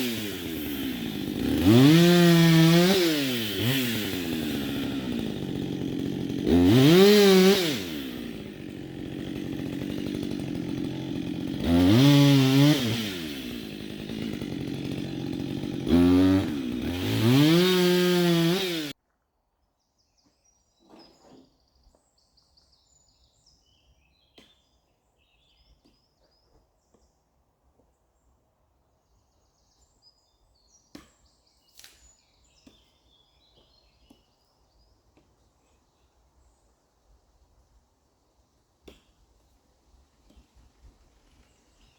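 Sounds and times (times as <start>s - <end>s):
chainsaw revving and idling: 0.0s - 19.0s.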